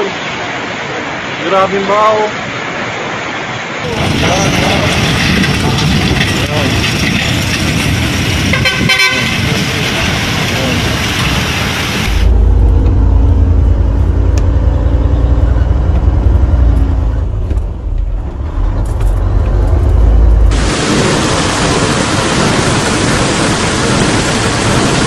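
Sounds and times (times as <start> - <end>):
heavy low rumble: 3.8 - 25.0
vehicle horn: 8.5 - 9.5.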